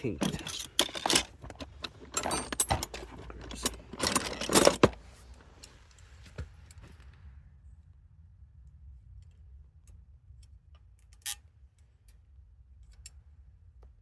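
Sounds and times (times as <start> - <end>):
metal parts clattering: 0.0 - 5.1.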